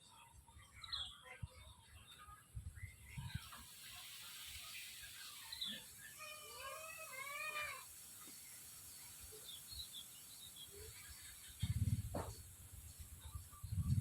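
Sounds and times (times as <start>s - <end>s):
animal crying: 6.2s - 7.9s.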